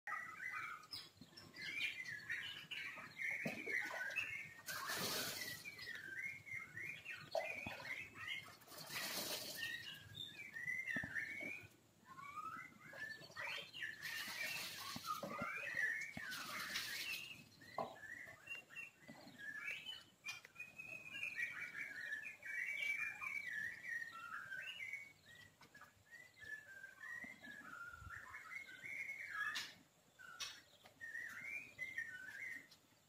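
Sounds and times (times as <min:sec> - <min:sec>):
small birds chirping: 0:00.1 - 0:33.0
rustling noise: 0:08.6 - 0:10.1, 0:14.0 - 0:15.6.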